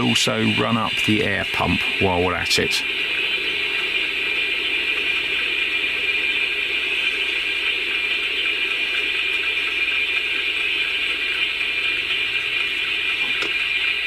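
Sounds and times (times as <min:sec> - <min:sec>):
steam hiss from small loudspeaker: 0:00.0 - 0:14.0.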